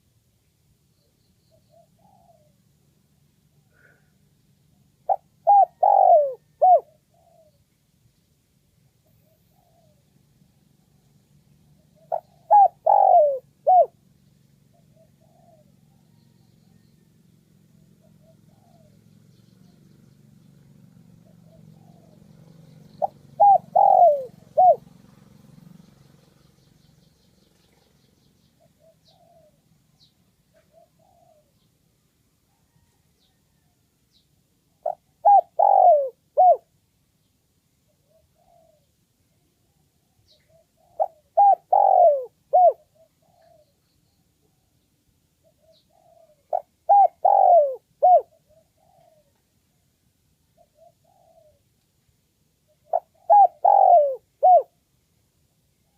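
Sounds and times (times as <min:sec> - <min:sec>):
dove cooing: 0:01.5 - 0:02.9, 0:04.8 - 0:07.6, 0:09.2 - 0:11.0, 0:11.7 - 0:17.0, 0:17.6 - 0:19.8, 0:20.6 - 0:26.6, 0:28.6 - 0:31.7, 0:34.7 - 0:36.7, 0:37.9 - 0:38.9, 0:39.6 - 0:43.8, 0:45.4 - 0:49.4, 0:50.6 - 0:51.7, 0:52.7 - 0:54.8.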